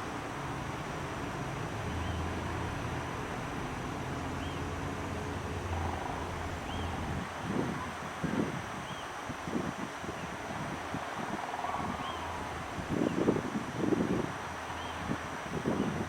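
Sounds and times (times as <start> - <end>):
low hum: 1.6 - 7.9
wind on microphone: 1.7 - 16.0
faint high chirp: 6.0 - 7.2.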